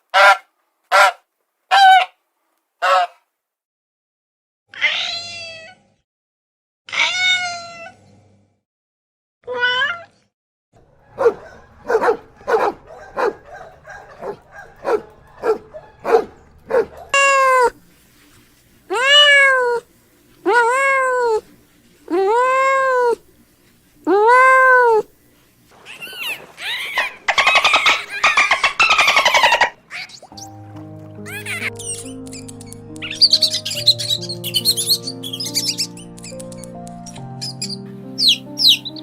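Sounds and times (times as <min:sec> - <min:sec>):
cat meowing: 0:04.7 - 0:05.8, 0:06.9 - 0:08.0, 0:09.5 - 0:10.1, 0:14.2 - 0:17.8, 0:18.9 - 0:19.8, 0:20.5 - 0:21.4, 0:22.1 - 0:23.2, 0:24.1 - 0:25.0.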